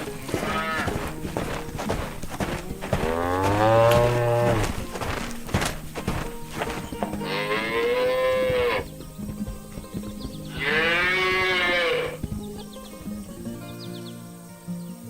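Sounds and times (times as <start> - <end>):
cattle mooing: 0.0 - 5.2, 7.1 - 8.9, 10.5 - 12.2.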